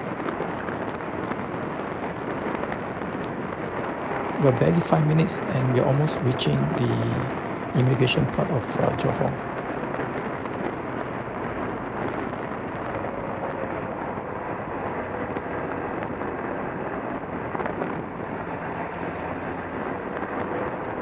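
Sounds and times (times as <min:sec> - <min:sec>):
wind and road noise: 0:00.0 - 0:21.0
motorcycle engine cruising: 0:17.5 - 0:21.0.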